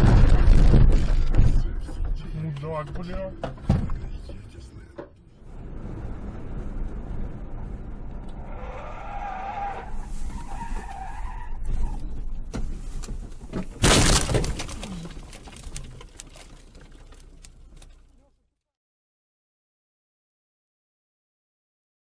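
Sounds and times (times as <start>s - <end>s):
loud car crash: 0.0s - 1.8s, 13.6s - 15.6s
road rumble: 0.0s - 18.5s
tyres squealing: 8.6s - 12.2s
rattling debris: 13.2s - 18.2s.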